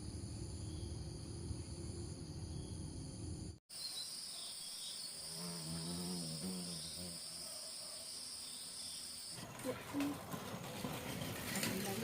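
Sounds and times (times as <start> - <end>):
insects chirring: 0.0 - 9.4.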